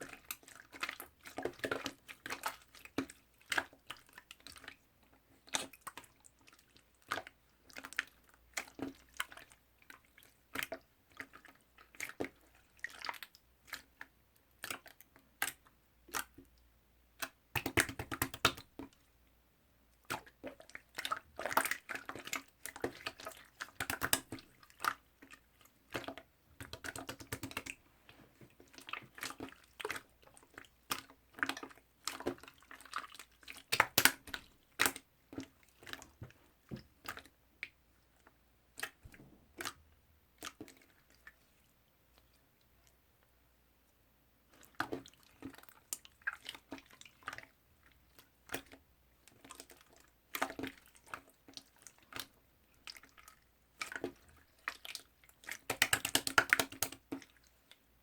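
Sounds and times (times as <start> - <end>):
slime squishing and popping: 33.6 - 35.0.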